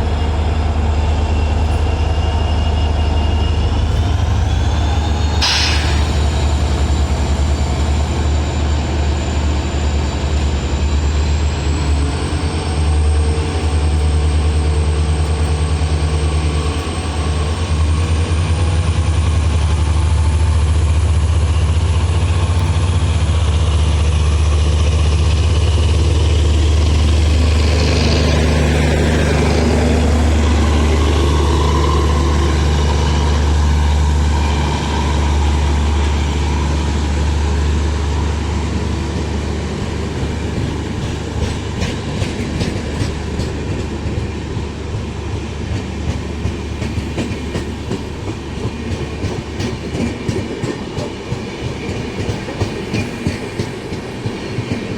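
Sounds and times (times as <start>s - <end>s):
locomotive drone: 0.0s - 54.9s
wheels clacking over rail joints: 38.6s - 54.9s.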